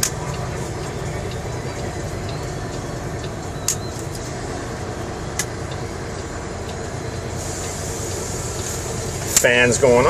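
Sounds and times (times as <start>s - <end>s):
truck engine running: 0.0s - 10.0s
hiss: 7.4s - 9.4s.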